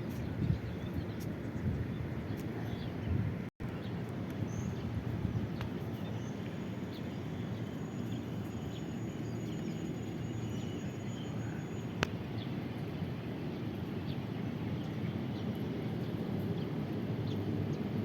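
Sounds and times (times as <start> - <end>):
faint bird chirps: 6.1 - 12.0.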